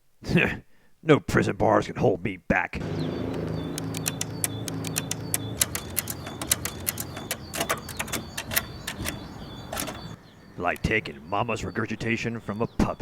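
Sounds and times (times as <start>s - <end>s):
sharp clicks and knocks: 3.2s - 10.2s.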